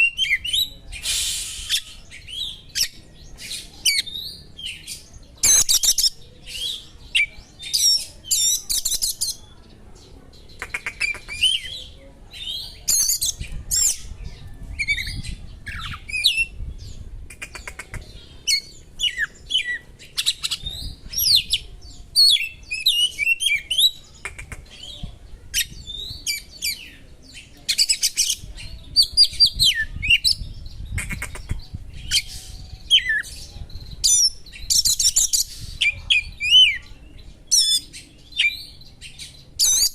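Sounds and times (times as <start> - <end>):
bird singing whistles and trills: 0.0 - 9.4, 14.7 - 17.0, 18.4 - 24.0, 25.6 - 39.9
harsh rasping bird notes: 1.0 - 2.0.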